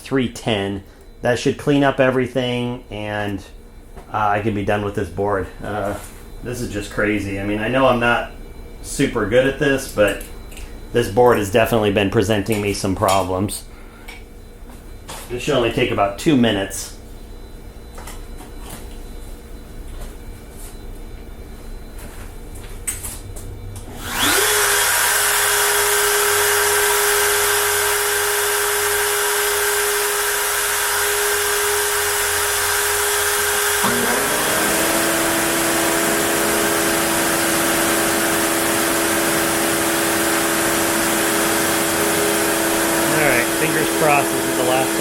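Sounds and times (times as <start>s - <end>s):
cnc machine motor whine: 15.1s - 45.0s.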